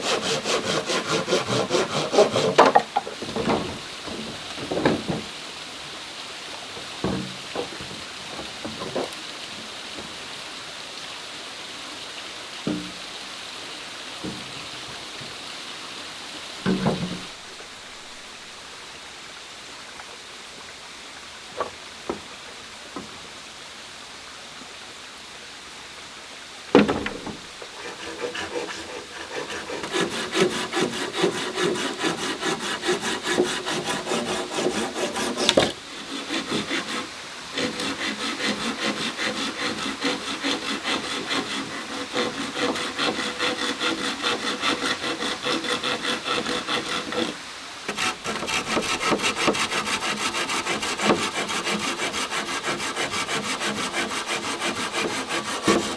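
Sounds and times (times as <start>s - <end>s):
hand saw cutting bamboo: 0.0s - 5.3s, 16.6s - 18.2s, 26.8s - 55.9s.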